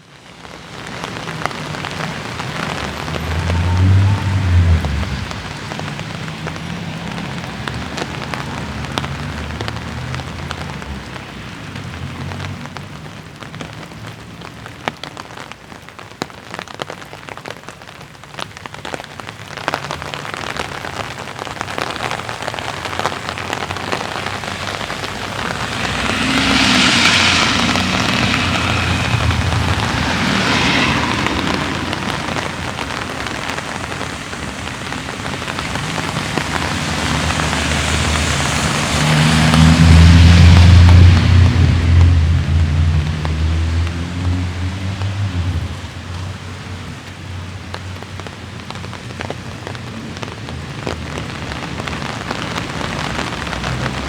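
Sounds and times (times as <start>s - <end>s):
light rain pattering: 0.0s - 54.0s
loud rushing hiss: 23.2s - 38.4s.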